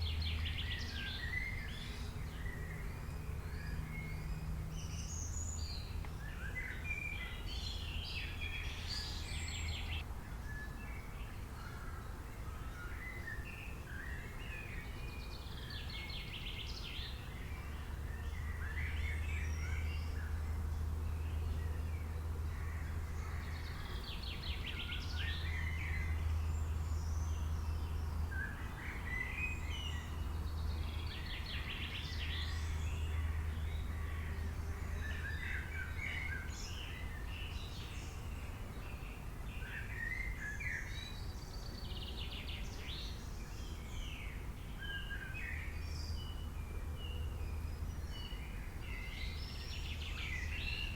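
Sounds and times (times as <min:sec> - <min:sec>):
birds chirping and trilling: 0:00.0 - 0:50.9.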